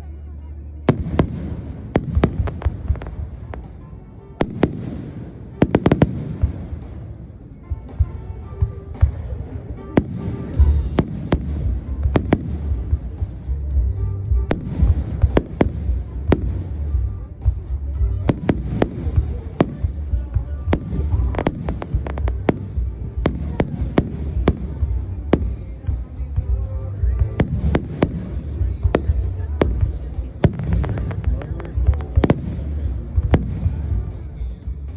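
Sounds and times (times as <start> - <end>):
fireworks bursting with sharp bangs: 0.8 - 34.9.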